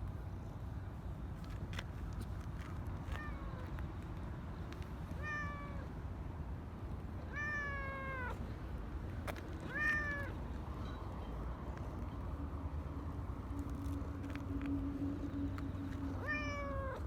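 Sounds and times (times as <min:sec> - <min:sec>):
cat meowing: 0:05.2 - 0:05.9, 0:07.3 - 0:08.4, 0:09.7 - 0:10.4, 0:16.2 - 0:17.0.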